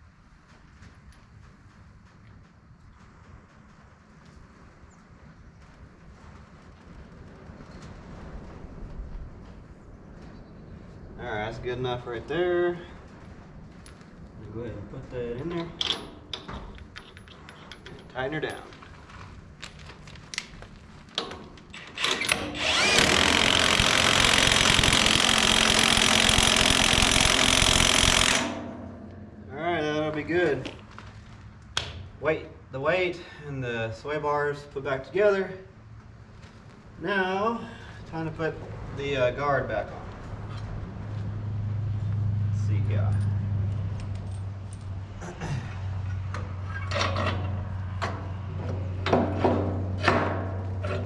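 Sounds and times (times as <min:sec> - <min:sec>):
steady low hum: 0:00.0 - 0:51.0
metal tools knocking and clinking: 0:15.5 - 0:18.9
power tool whining: 0:21.8 - 0:28.7.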